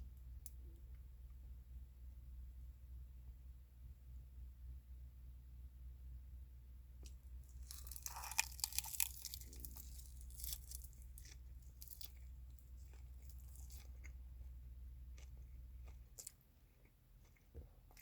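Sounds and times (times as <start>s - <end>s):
steady low hum: 0.0s - 18.0s
person chewing crunchy food: 7.5s - 18.0s.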